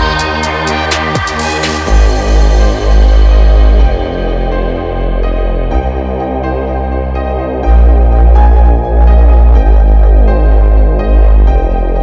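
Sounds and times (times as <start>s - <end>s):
electronic dance music: 0.0s - 4.3s
heavy bass drop: 0.0s - 12.0s.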